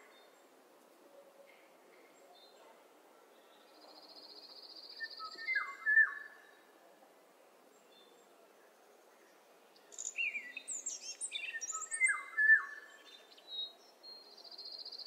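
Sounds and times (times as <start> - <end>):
faint steady hiss: 0.0 - 15.0
songbirds singing: 3.3 - 6.8, 7.6 - 15.0.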